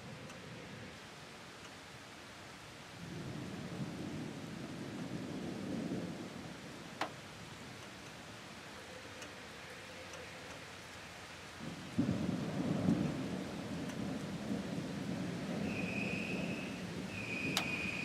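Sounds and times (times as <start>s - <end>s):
rain hissing: 0.0s - 18.0s
thunder rumbling: 11.6s - 18.0s.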